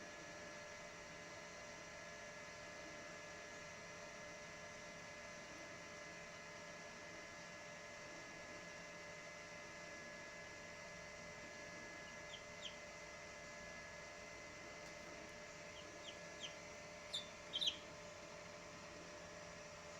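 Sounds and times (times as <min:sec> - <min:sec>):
steady electrical hum: 0:00.0 - 0:19.9
chick peeping: 0:12.0 - 0:12.8, 0:15.5 - 0:17.9.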